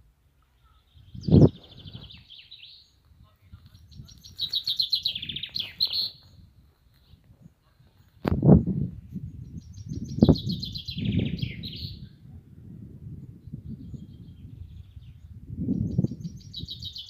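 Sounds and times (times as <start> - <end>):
songbird trilling: 3.7 - 6.4, 9.4 - 12.1, 15.8 - 17.0.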